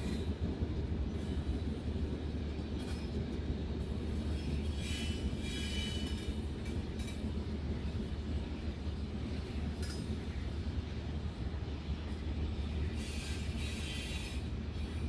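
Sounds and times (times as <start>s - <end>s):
high squeal of train wheels: 0.0s - 0.4s, 2.7s - 8.2s, 12.1s - 15.0s
freight train rumbling on rails: 0.0s - 15.0s.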